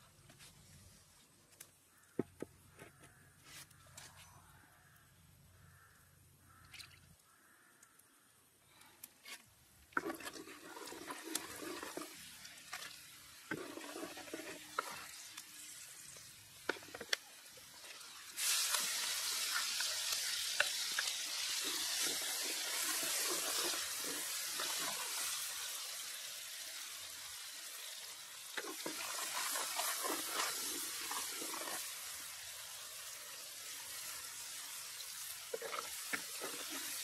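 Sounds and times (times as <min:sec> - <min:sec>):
stirring scrapes: 0:09.2 - 0:12.9, 0:13.5 - 0:15.2, 0:28.6 - 0:31.9, 0:35.5 - 0:37.0
food sizzling in hot oil: 0:10.0 - 0:37.0.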